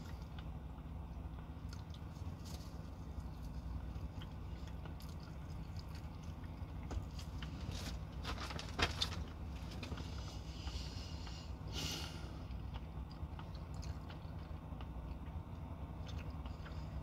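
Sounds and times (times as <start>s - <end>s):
person chewing food: 0.0s - 8.2s, 9.3s - 17.0s
truck cab hum: 0.0s - 17.0s
clicks and rustles: 6.9s - 10.1s.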